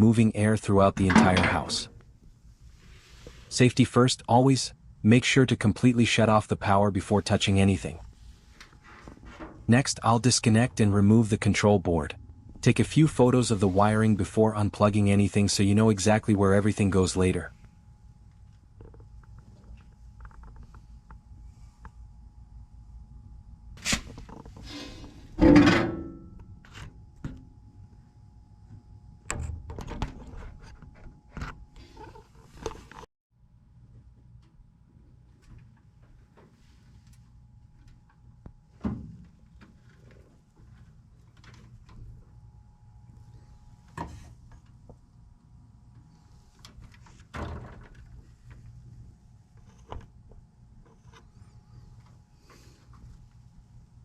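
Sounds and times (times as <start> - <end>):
low steady hum: 0.0 - 54.0
loud ringing metallic clank: 1.0 - 1.9
clicks and knocks: 1.0 - 2.0.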